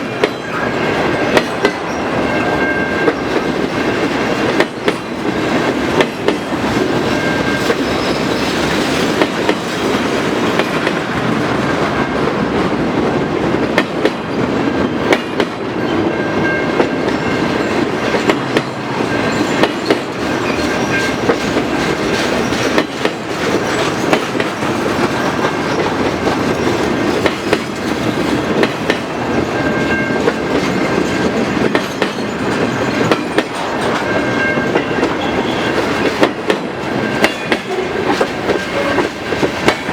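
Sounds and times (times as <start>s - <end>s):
train rumble: 0.0s - 39.9s
train wheels clacking on rails: 0.0s - 39.9s
high wheel squeals: 7.0s - 10.6s, 18.6s - 21.6s, 29.2s - 36.2s.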